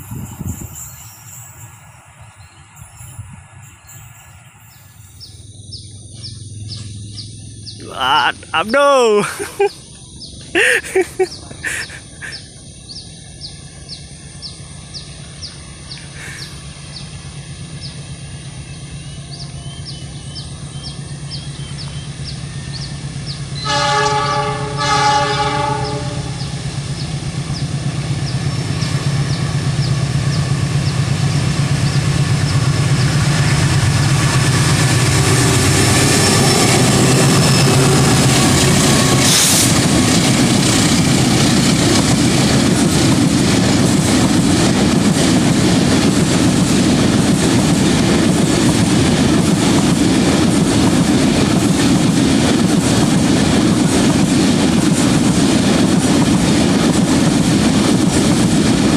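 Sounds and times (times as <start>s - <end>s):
diesel locomotive engine hum: 0.0s - 58.9s
train horn blasts: 23.6s - 26.5s
wheels on rails: 26.4s - 58.9s.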